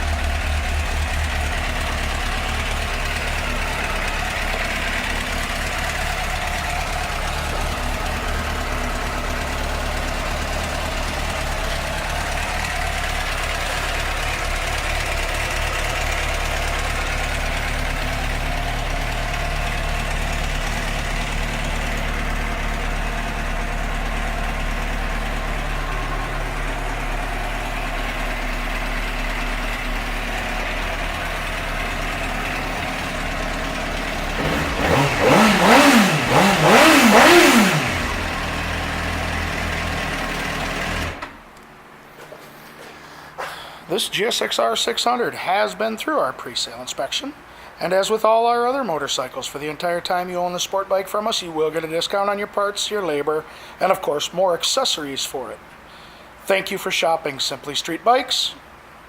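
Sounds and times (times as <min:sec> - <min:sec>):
motorcycle engine idling: 0:00.0 - 0:41.6.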